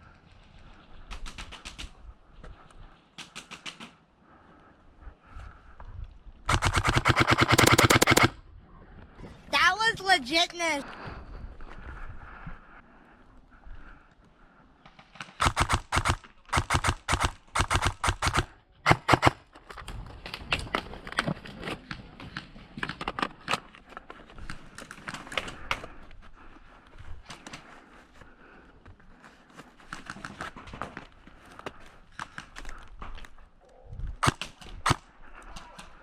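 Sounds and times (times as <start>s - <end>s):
airsoft gun firing: 6.5s - 8.4s, 15.3s - 19.4s, 34.2s - 35.0s.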